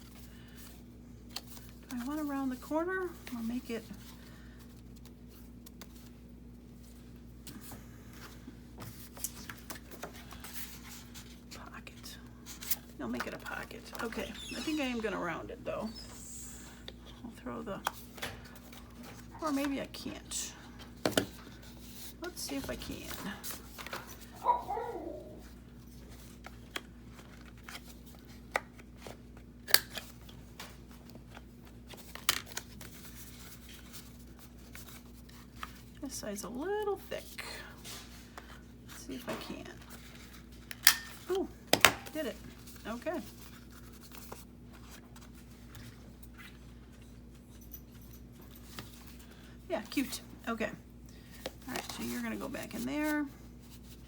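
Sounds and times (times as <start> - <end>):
paper and card handling: 0.0 - 11.5, 20.6 - 36.0, 36.9 - 47.5
faint steady hum: 0.0 - 54.0.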